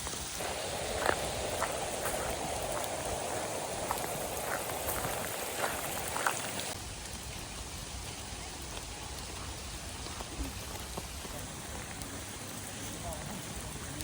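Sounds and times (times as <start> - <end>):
rain falling: 0.0 - 14.0
drops ticking: 0.2 - 6.8.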